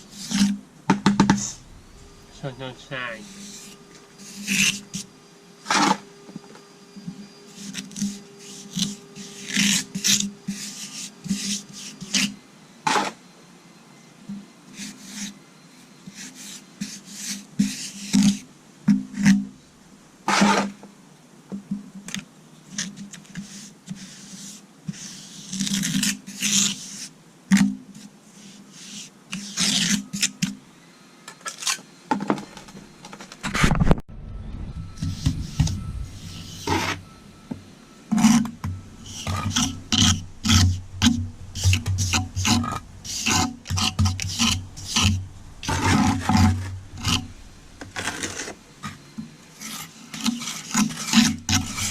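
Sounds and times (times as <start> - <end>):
hand tool scraping concrete: 2.4 - 5.1, 7.5 - 13.2, 20.3 - 20.8, 28.8 - 30.4, 35.0 - 37.0, 38.1 - 51.9.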